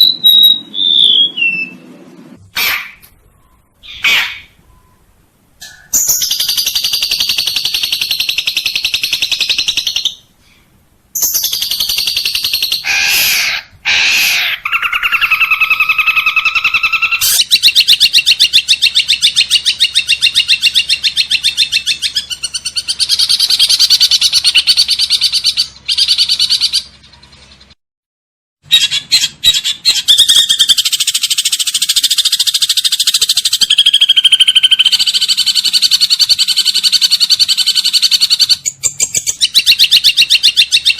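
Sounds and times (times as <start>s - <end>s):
rising bird whistles: 0.0s - 1.9s, 2.6s - 5.1s
buzzy bird trills: 0.0s - 10.3s, 11.2s - 27.8s.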